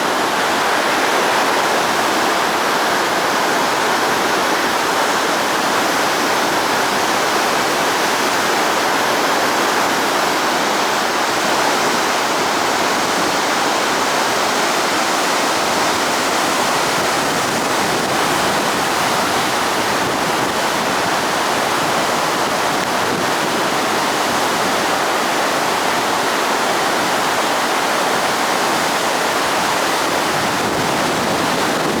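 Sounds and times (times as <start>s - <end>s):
river rushing over a dam: 0.0s - 32.0s.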